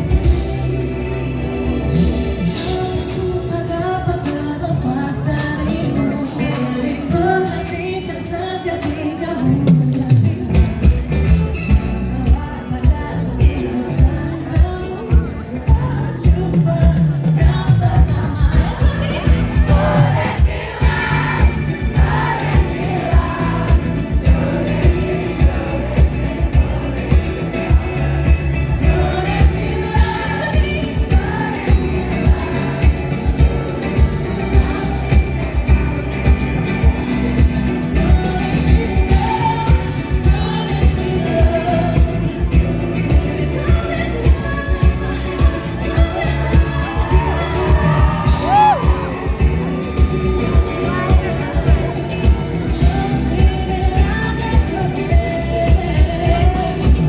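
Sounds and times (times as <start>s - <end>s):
crowd voices: 0.0s - 57.0s
live pop band with singing: 0.0s - 57.0s
crowd cheering: 19.2s - 37.4s, 45.6s - 52.8s.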